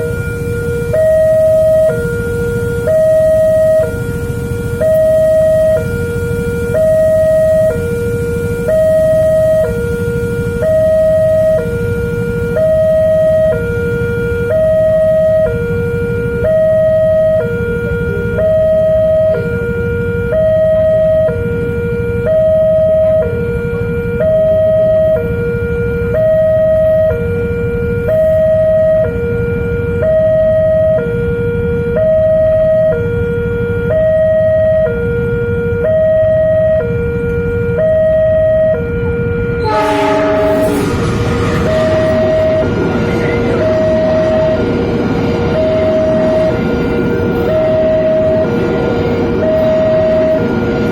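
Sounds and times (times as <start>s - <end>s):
two-tone level crossing alarm: 0.0s - 50.9s
steady low rumble: 39.4s - 50.9s.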